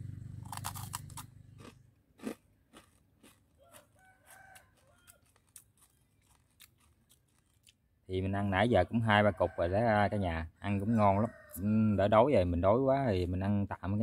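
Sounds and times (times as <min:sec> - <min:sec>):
crunching and chewing rice cake: 0:00.4 - 0:08.0
faint rooster crowing: 0:03.5 - 0:05.6, 0:08.8 - 0:12.6.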